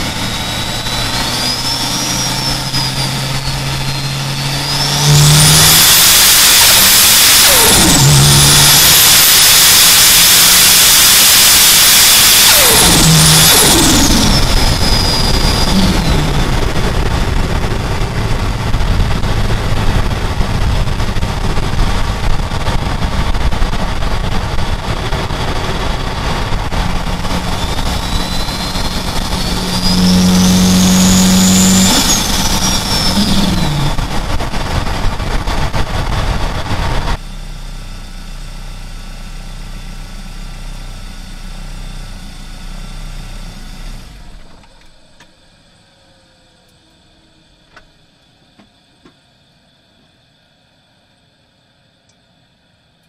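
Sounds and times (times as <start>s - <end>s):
turbo whistle: 0.0s - 17.2s, 26.2s - 34.4s
car engine pulling hard: 0.0s - 48.1s.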